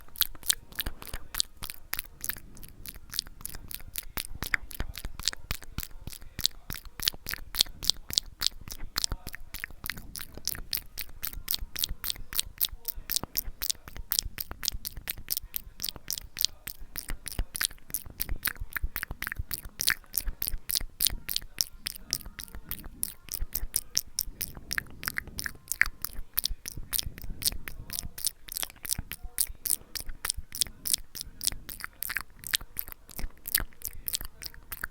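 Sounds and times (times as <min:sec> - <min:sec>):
wet mouth clicks and smacks: 0:00.0 - 0:34.9.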